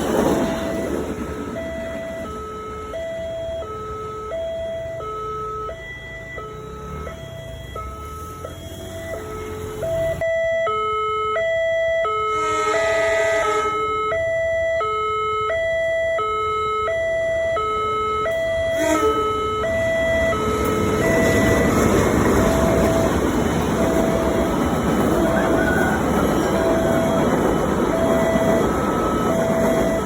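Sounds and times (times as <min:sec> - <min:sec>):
approaching train rumble: 0:00.0 - 0:05.0, 0:18.6 - 0:30.0
level crossing two-note alarm: 0:01.6 - 0:21.8.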